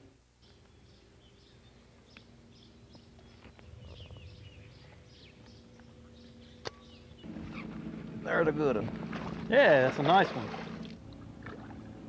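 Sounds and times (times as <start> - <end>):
faint birds chirping: 0.0 - 8.9
faint low hum: 0.0 - 12.0.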